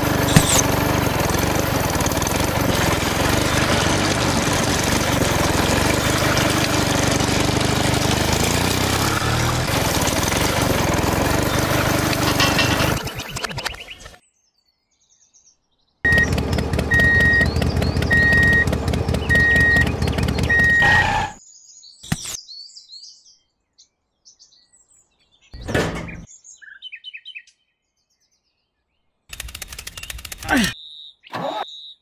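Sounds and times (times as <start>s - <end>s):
loud rattling mechanical noise: 0.0s - 13.7s, 16.1s - 21.4s, 29.3s - 30.7s
bird chirps: 21.4s - 29.2s, 29.9s - 32.0s.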